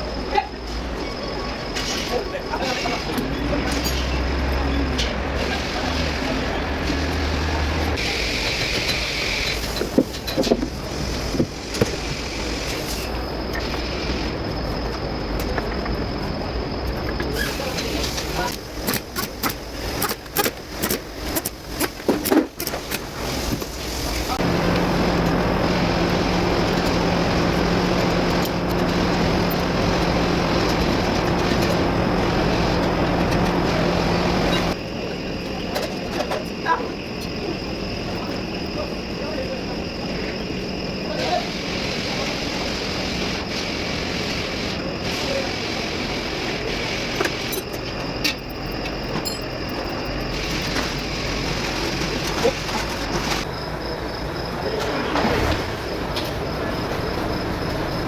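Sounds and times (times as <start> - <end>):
diesel truck engine running: 3.1 - 14.2, 23.1 - 35.6, 39.9 - 58.0.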